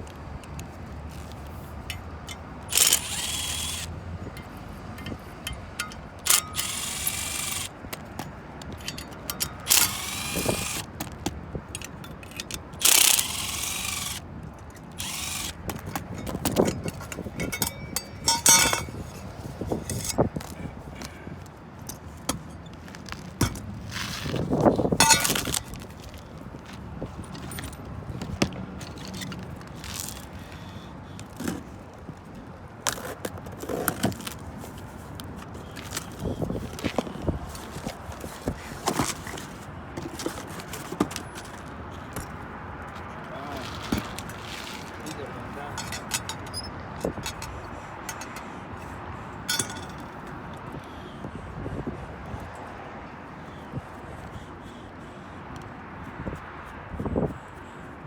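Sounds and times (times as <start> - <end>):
tools scraping: 0.5 - 31.7, 32.9 - 42.4, 43.0 - 50.9
cordless drill running: 2.7 - 4.0, 6.2 - 7.7, 9.6 - 10.9, 12.8 - 14.2, 15.0 - 16.0
metal clinks: 15.1 - 20.2, 25.0 - 25.8, 49.5 - 50.4.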